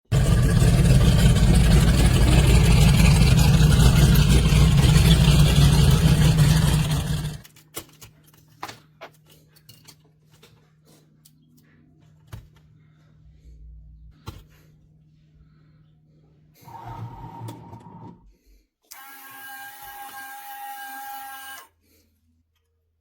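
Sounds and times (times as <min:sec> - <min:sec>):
car engine running loudly: 0:00.0 - 0:07.4.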